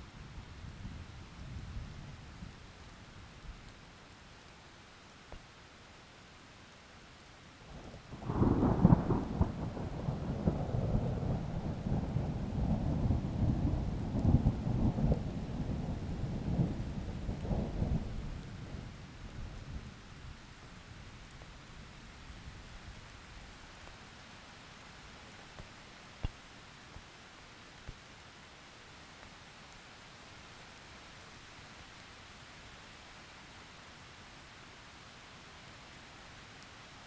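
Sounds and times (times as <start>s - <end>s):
faint rain patter: 0.0s - 37.0s
thunder rumbling: 8.2s - 19.0s.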